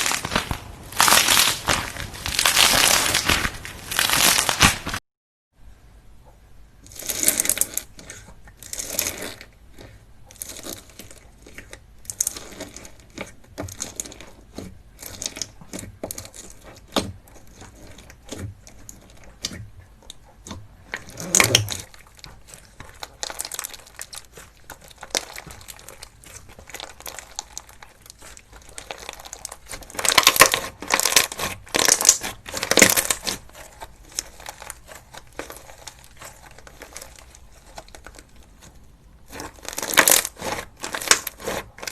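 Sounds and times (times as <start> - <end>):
crunchy slime squeezed by hand: 0.0 - 5.0, 20.4 - 41.9.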